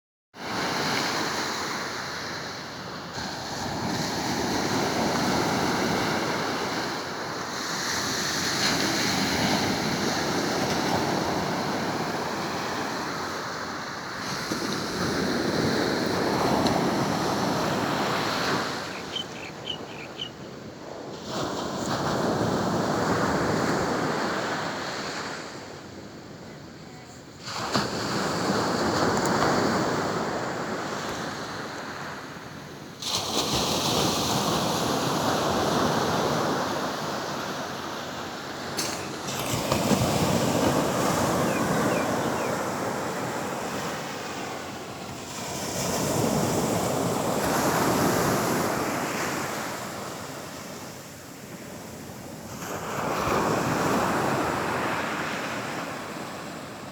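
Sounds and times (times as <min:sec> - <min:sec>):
sea waves breaking on beach: 0:27.4 - 0:56.9.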